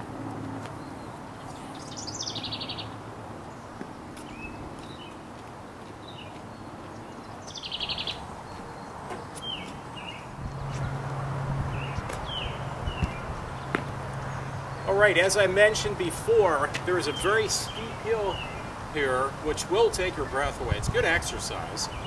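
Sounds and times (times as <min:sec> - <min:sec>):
songbird trill: 0:00.7 - 0:05.2, 0:06.0 - 0:11.0, 0:11.7 - 0:20.5, 0:21.3 - 0:22.0
bird chirps: 0:00.8 - 0:05.2, 0:06.0 - 0:11.0, 0:17.0 - 0:18.7.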